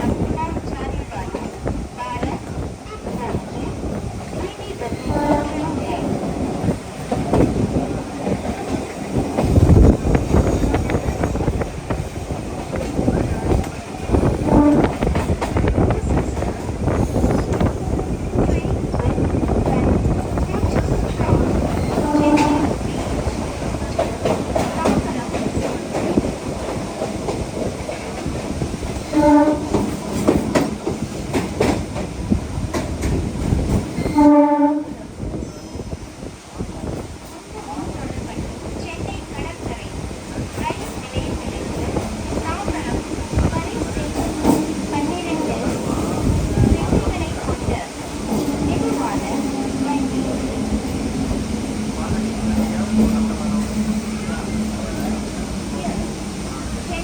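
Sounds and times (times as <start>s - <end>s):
train wheels rumbling: 0.0s - 57.0s
train horn blasts: 4.8s - 6.4s, 14.1s - 17.4s, 20.6s - 23.5s, 29.0s - 30.0s, 34.0s - 35.1s, 46.5s - 57.0s.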